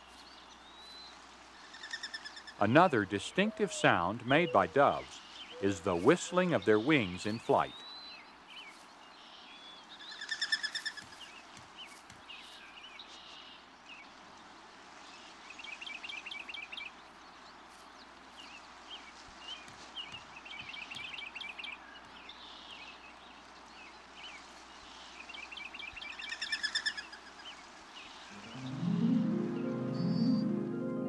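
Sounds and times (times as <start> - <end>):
dove wings whistling: 3.3 - 7.8.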